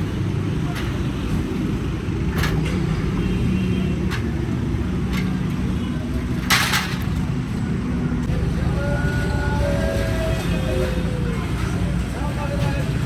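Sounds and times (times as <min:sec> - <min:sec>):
short clatters: 0:00.0 - 0:07.6
faint voices: 0:00.0 - 0:13.0
traffic rumble: 0:00.0 - 0:13.0.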